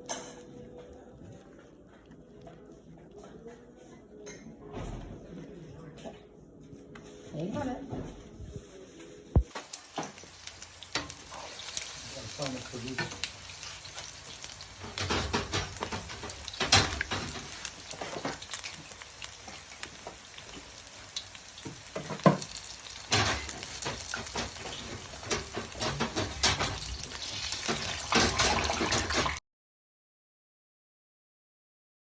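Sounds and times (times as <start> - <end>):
food sizzling in a pan: 9.4 - 29.4
utensil clattering against pan: 14.8 - 18.4, 23.1 - 29.4.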